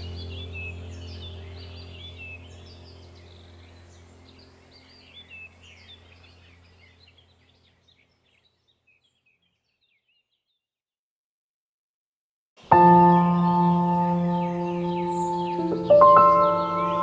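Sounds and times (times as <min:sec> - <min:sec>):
steady low hum: 0:00.0 - 0:08.2
birds chirping: 0:00.0 - 0:10.6, 0:12.6 - 0:17.0.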